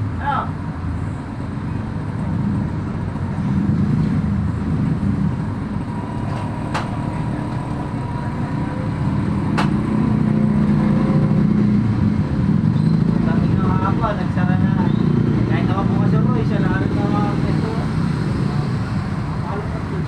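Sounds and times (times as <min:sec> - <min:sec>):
road traffic rumble: 0:00.0 - 0:20.0
sharp knocks: 0:09.5 - 0:10.1.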